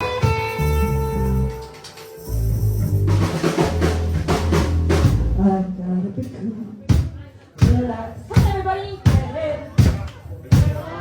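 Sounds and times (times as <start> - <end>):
drum kit hits: 0.0 - 1.9, 3.0 - 5.4
live band playing: 0.0 - 5.7.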